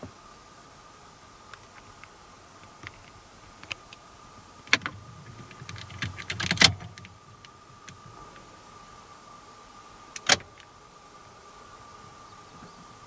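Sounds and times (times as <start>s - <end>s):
faint high hum: 0.0s - 13.0s
mechanical clicking in a car: 4.6s - 8.1s, 10.2s - 10.7s
rapid clicking and rattling: 4.6s - 8.4s.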